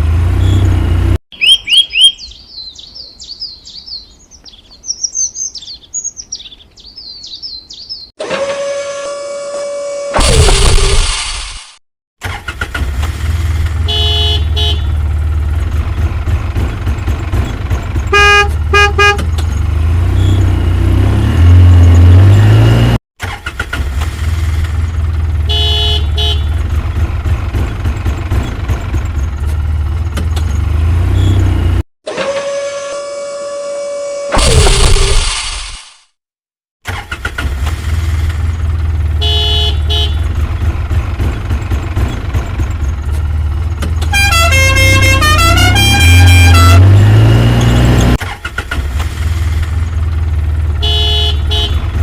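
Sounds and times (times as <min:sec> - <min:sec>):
truck horn honks: 0:08.2 - 0:10.2, 0:13.8 - 0:15.0, 0:18.1 - 0:19.4, 0:25.4 - 0:26.7, 0:32.1 - 0:34.4, 0:39.1 - 0:40.4, 0:44.0 - 0:48.2, 0:50.7 - 0:52.0
truck engine revving: 0:15.1 - 0:25.4, 0:36.9 - 0:52.0.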